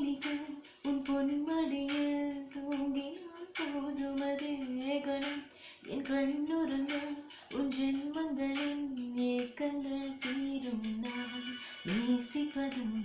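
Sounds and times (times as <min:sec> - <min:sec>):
karaoke backing track: 0:00.0 - 0:13.0
woman singing slow love song: 0:00.0 - 0:13.0
singer breathing: 0:05.4 - 0:05.9, 0:11.5 - 0:11.9.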